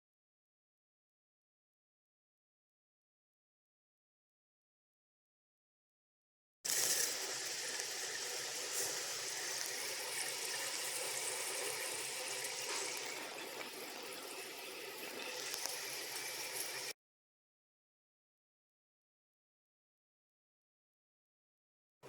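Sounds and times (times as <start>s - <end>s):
oil pouring in a stream: 6.7s - 17.0s.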